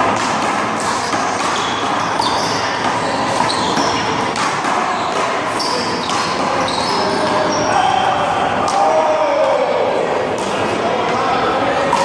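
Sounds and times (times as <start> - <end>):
sneakers squeaking and shuffling: 0.0 - 8.6
steady background noise: 0.0 - 12.0.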